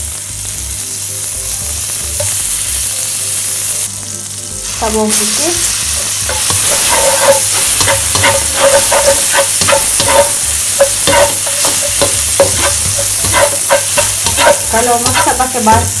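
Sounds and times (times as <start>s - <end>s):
garlic sizzling in margarine: 0.0s - 16.0s
spatula scraping and tapping a pan: 6.2s - 16.0s.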